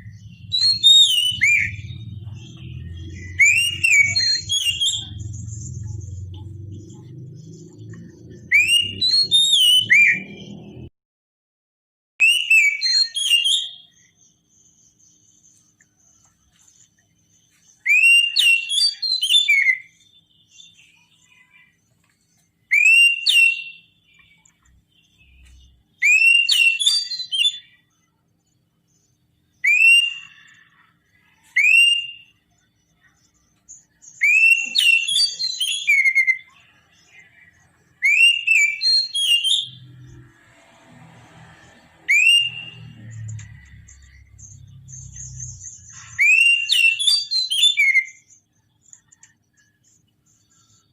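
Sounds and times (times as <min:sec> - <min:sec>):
bird singing whistled phrases: 0:00.0 - 0:07.1, 0:07.7 - 0:10.8, 0:12.2 - 0:14.2, 0:17.8 - 0:21.8, 0:22.7 - 0:27.8, 0:29.6 - 0:32.4, 0:34.0 - 0:36.7, 0:38.0 - 0:40.2, 0:42.0 - 0:48.3
low hum: 0:00.0 - 0:10.9.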